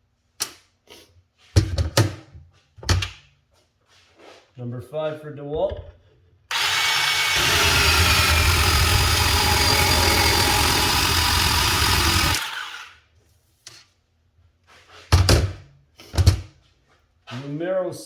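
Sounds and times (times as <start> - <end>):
bandsaw cutting pipe: 6.5 - 13.0.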